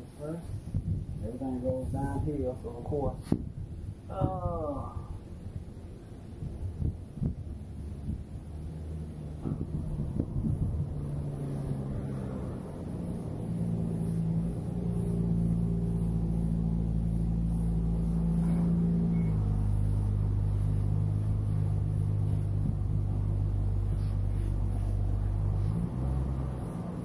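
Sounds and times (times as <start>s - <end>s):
engine humming: 7.5s - 27.0s.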